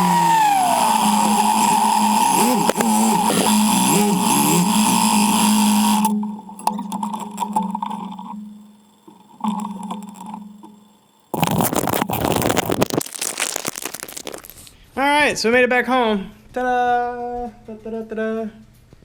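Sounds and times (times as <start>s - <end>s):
loud rough noise: 0.0s - 6.1s, 11.3s - 14.8s
motorcycle engine droning: 0.0s - 12.3s.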